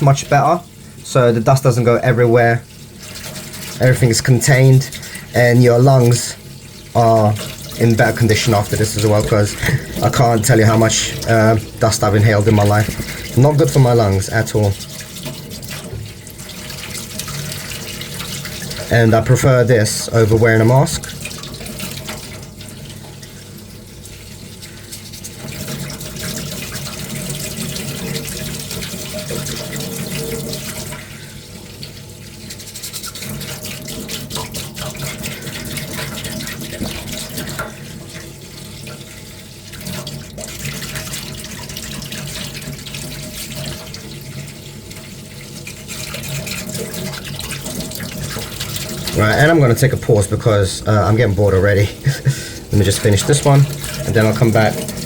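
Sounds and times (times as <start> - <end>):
water swishing and sloshing: 0.0 - 55.0.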